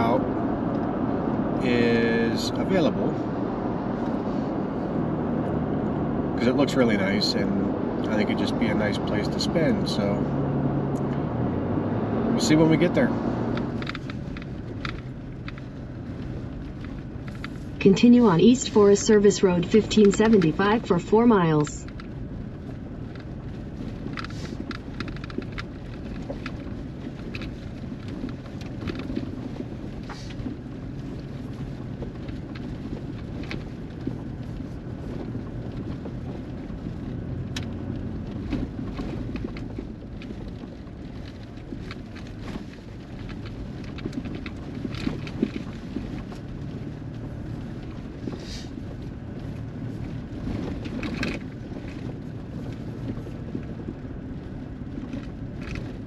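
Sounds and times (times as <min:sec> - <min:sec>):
truck engine and tyre rumble: 0:00.0 - 0:56.0
clicks and rattles: 0:13.5 - 0:17.7, 0:23.0 - 0:54.0.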